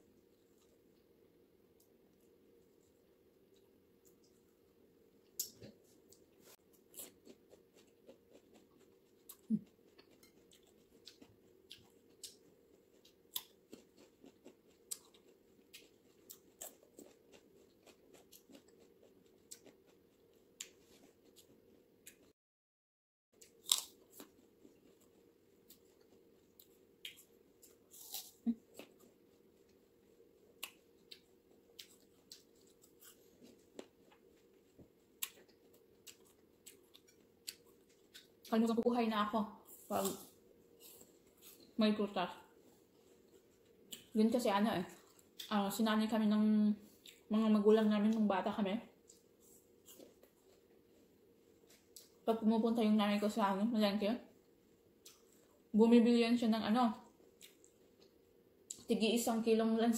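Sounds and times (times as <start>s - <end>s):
fruit being chewed: 1.8s - 22.4s, 23.4s - 38.6s, 49.0s - 52.3s, 54.9s - 55.6s, 57.1s - 58.9s.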